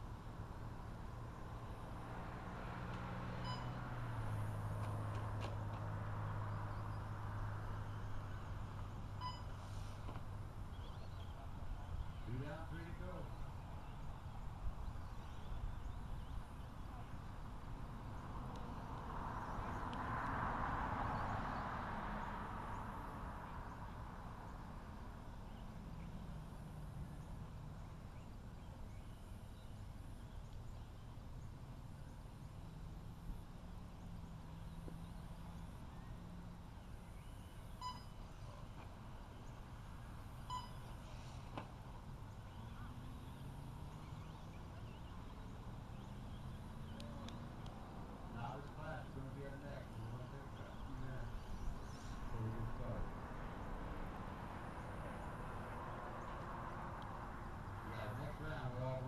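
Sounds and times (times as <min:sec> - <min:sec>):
short electronic beep: 0:03.4 - 0:03.8, 0:09.2 - 0:09.5, 0:37.8 - 0:38.2, 0:40.5 - 0:40.8.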